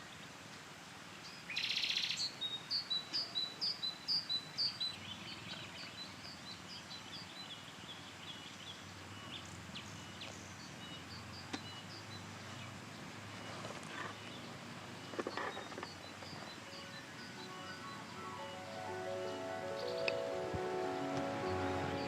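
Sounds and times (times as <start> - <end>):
birds chirping: 9.2 - 22.0.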